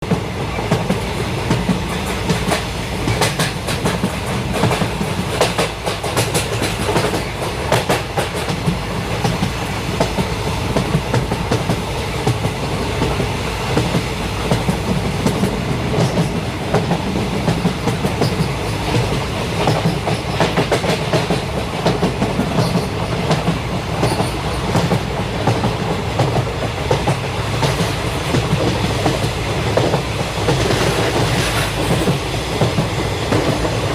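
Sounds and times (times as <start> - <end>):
train rumbling on track: 0.0 - 33.9.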